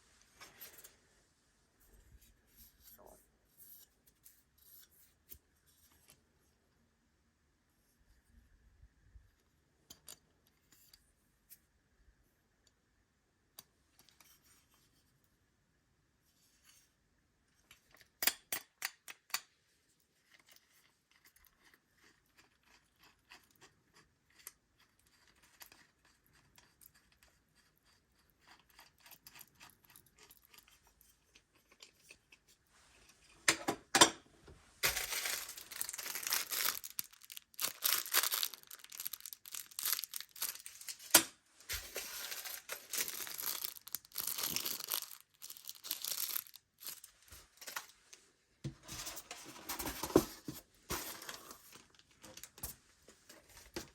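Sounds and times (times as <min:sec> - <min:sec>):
wrapping crinkling and tearing: 0:34.8 - 0:48.0.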